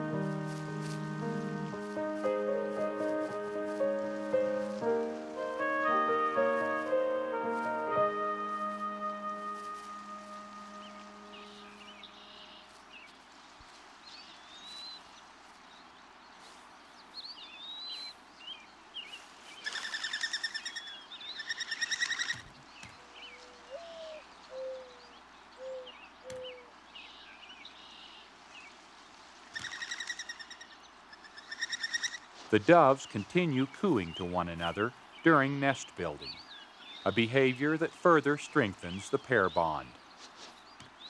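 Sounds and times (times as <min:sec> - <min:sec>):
bird chirps: 0:19.6 - 0:28.2
dove cooing: 0:23.5 - 0:25.0.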